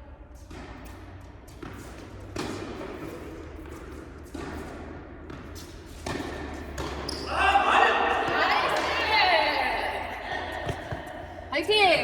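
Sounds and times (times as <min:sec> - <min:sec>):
echoing tennis ball thuds: 0:10.3 - 0:11.6.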